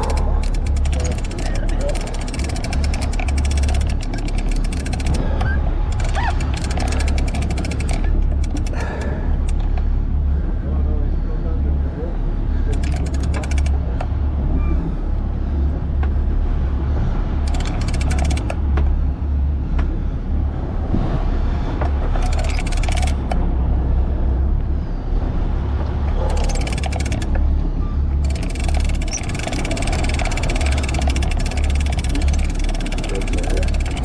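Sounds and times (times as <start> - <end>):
fishing reel ticking: 0.0 - 5.2, 5.9 - 9.6, 12.8 - 13.7, 17.5 - 18.5, 22.2 - 23.2, 26.4 - 27.3, 28.2 - 34.0
boat engine rumbling: 0.0 - 34.0.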